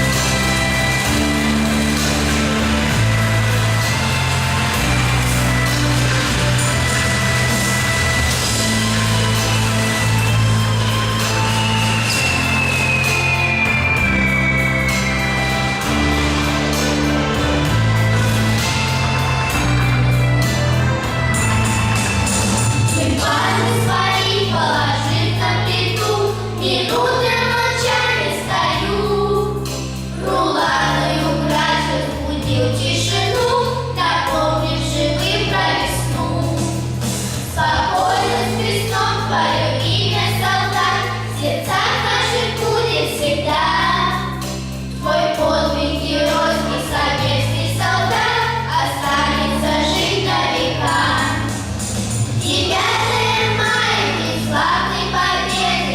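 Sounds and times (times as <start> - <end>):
instrumental accompaniment: 0.0 - 55.9
vocal ensemble singing: 22.8 - 55.9.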